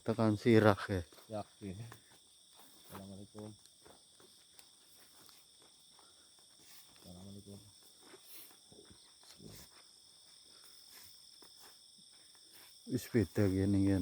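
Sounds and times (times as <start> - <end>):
crickets and night insects trilling: 0.0 - 14.0
man speaking: 12.9 - 14.0.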